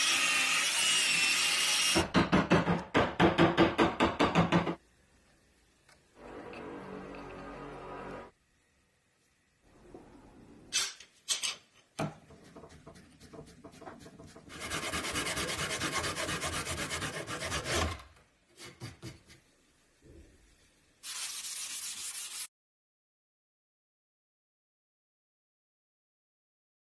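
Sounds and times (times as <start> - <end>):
sanding wood by hand: 12.4 - 17.9, 21.0 - 22.5.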